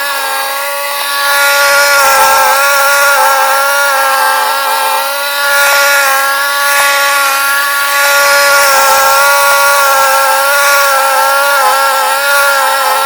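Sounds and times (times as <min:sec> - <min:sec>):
snowblower engine running: 0:00.0 - 0:13.0.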